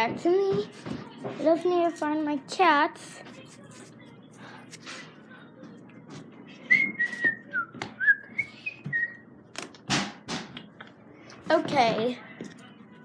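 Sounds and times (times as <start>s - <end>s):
person whistling: 6.7s - 9.2s.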